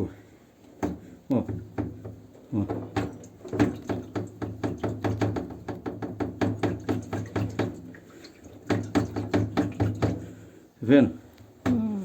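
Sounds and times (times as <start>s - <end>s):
washing machine knocking: 0.8s - 8.0s, 8.6s - 10.4s.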